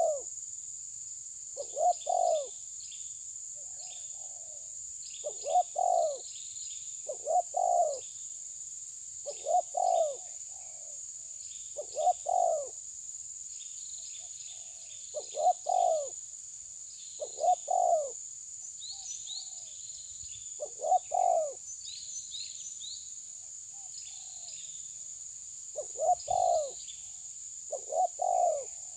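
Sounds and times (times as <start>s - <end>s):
bird low double call: 0.0s - 0.3s, 20.6s - 21.6s, 25.8s - 26.8s, 27.7s - 28.8s
faint high bird chirping: 0.0s - 0.3s, 1.6s - 8.4s, 9.2s - 12.8s, 13.5s - 28.9s.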